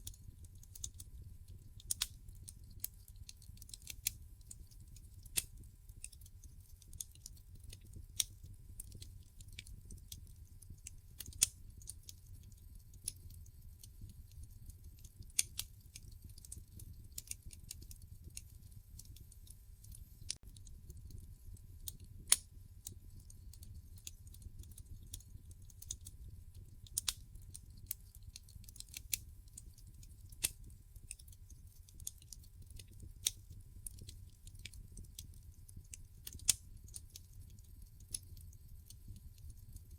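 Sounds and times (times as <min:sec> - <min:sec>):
wood fire crackling: 0:00.0 - 0:39.9
low fire rumble: 0:00.1 - 0:39.8.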